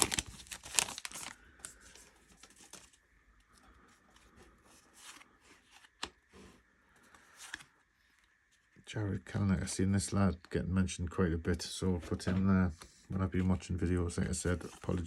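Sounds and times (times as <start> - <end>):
paper and foil crinkling: 0.0 - 3.0
trading cards rustling: 0.0 - 8.4, 11.6 - 15.0.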